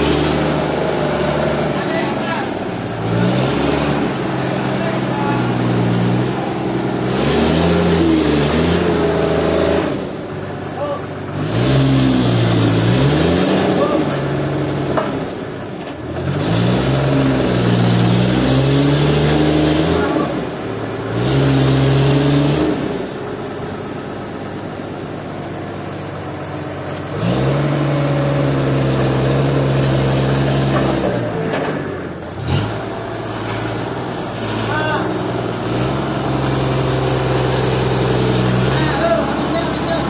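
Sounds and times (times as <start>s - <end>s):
engine revving: 0.0s - 24.6s, 25.9s - 40.0s.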